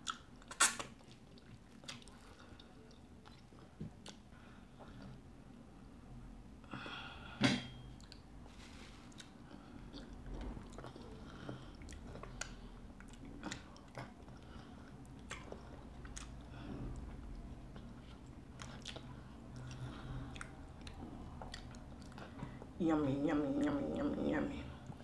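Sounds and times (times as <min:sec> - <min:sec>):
wet chewing and lip smacks: 0:00.0 - 0:04.3, 0:09.1 - 0:22.4.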